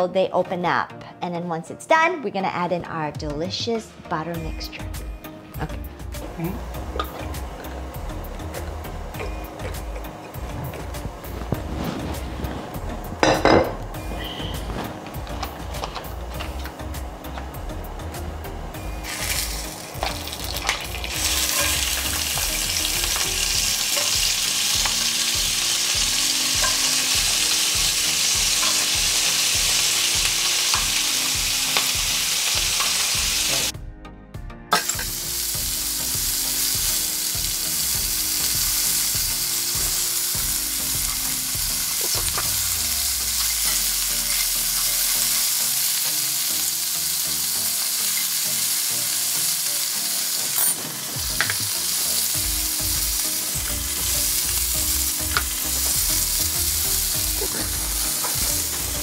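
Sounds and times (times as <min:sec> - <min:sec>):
clams sizzling in hot oil: 0:19.0 - 0:33.7, 0:34.8 - 0:59.0.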